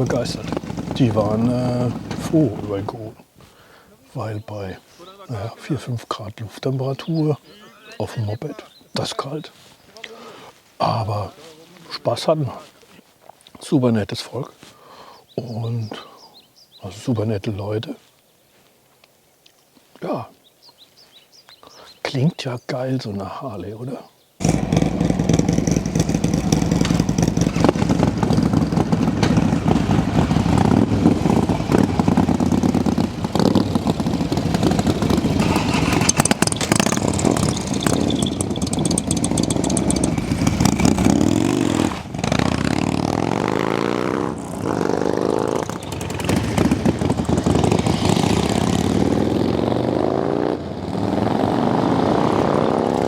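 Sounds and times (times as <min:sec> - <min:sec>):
motorcycle engines rumbling and revving: 0:00.0 - 0:03.2, 0:24.4 - 0:53.0.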